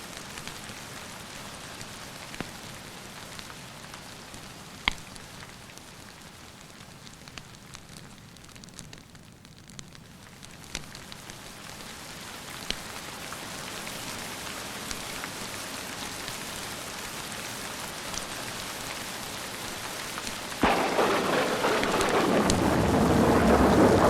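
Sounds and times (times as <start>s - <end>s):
steady rain: 0.0s - 24.0s
raindrops ticking: 20.2s - 24.0s
thunder clap rolling: 20.6s - 24.0s.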